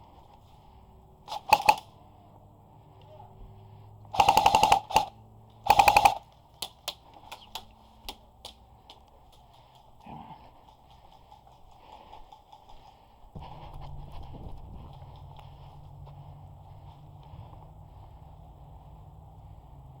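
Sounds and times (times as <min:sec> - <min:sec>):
airsoft guns firing: 0:01.3 - 0:02.0, 0:04.1 - 0:08.2.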